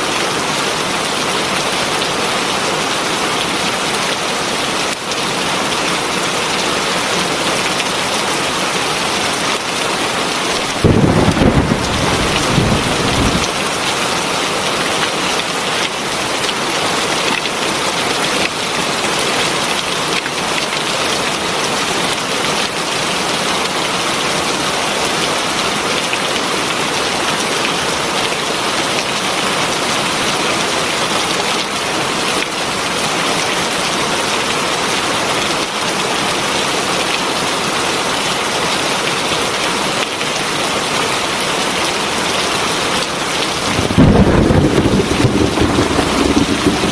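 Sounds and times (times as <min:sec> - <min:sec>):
thunder rumble: 0:10.7 - 0:13.7, 0:43.5 - 0:46.9
heavy rain hissing: 0:43.2 - 0:46.9.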